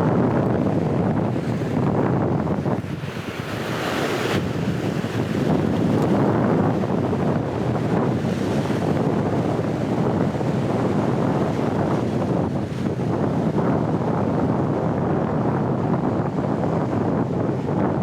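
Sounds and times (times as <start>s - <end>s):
sea swell and surf: 0.0s - 18.0s
strong wind buffeting microphone: 0.0s - 18.0s
hissing wash of water: 0.7s - 13.6s.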